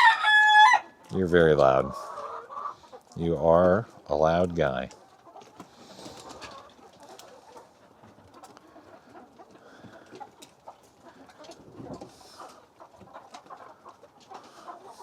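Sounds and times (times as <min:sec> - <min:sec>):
chickens clucking softly: 0:00.8 - 0:15.0.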